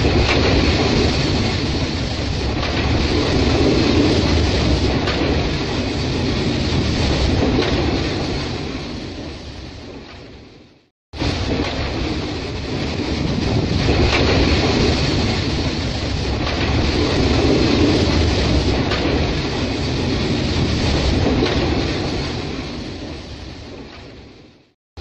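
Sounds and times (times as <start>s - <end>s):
train wheel clacks: 0.0s - 8.5s, 11.3s - 22.3s
freight wagons rolling rumble: 11.2s - 23.3s.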